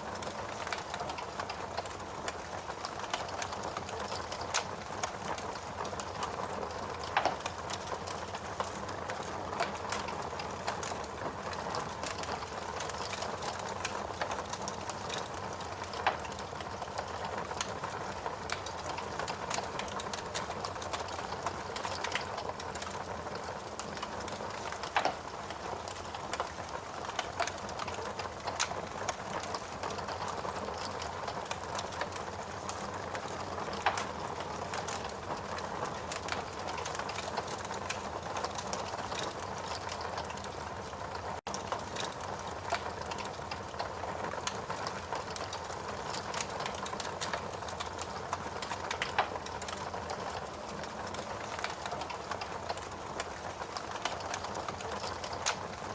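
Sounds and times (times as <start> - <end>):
wood fire crackling: 0.0 - 55.9.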